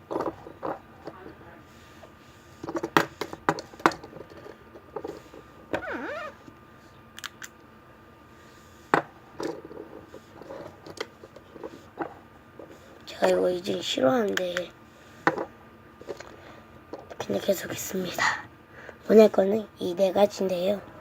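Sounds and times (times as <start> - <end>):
plastic toys clicking and knocking: 10.4 - 11.8.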